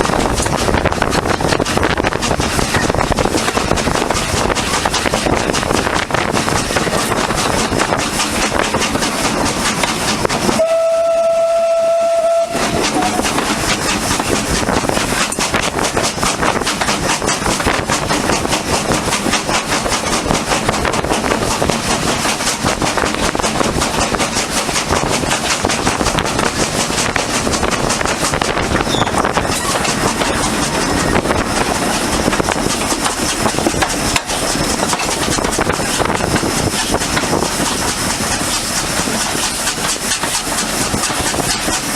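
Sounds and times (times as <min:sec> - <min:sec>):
train running: 0:00.0 - 0:41.9
steam locomotive whistle blast: 0:10.5 - 0:13.3.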